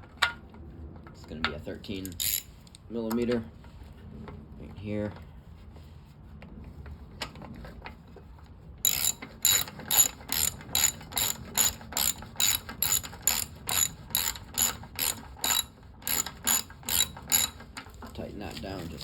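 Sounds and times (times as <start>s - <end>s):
ratchet wrench clicking: 2.0s - 3.2s, 8.9s - 17.7s.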